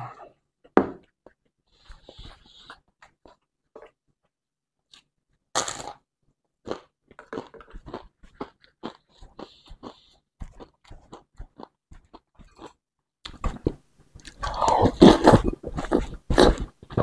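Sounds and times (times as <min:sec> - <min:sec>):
crunchy bite into snack: 0:05.6 - 0:06.0.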